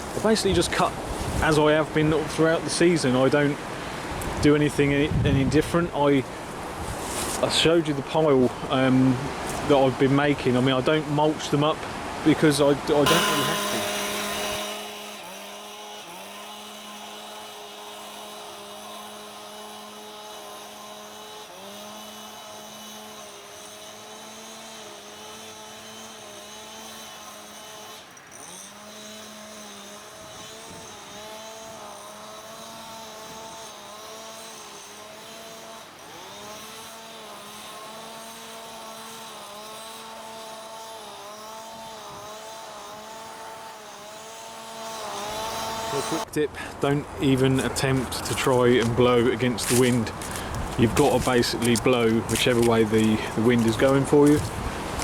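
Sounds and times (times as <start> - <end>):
petrol leaf blower running: 13.0 - 26.8, 29.8 - 46.3, 47.6 - 55.0.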